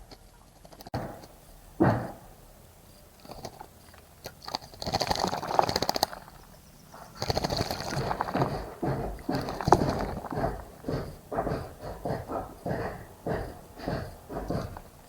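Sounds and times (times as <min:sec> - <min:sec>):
bird splashing in water: 0:03.2 - 0:15.0.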